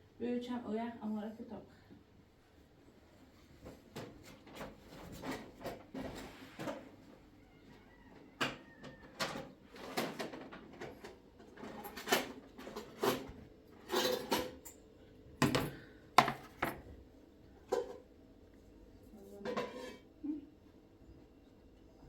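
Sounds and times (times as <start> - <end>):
household items knocking and clattering: 15.4 - 16.9.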